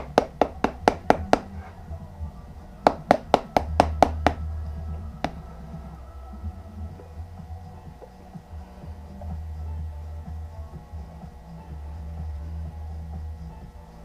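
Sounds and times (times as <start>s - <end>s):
rapid regular taps: 0.0s - 1.6s, 2.8s - 4.4s.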